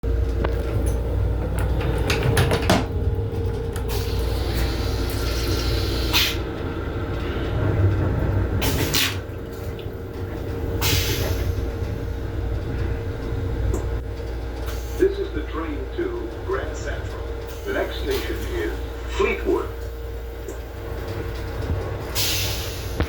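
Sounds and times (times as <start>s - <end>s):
railcar deep rumble and hum: 0.0s - 23.0s
sharp clicks and knocks: 0.3s - 3.9s.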